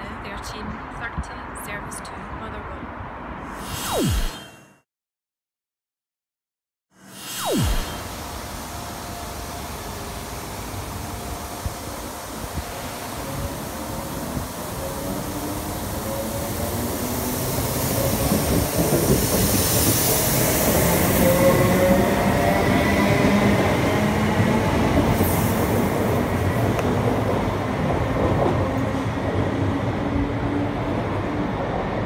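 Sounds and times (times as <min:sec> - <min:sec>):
electric train rumbling on rails: 0:08.1 - 0:32.0.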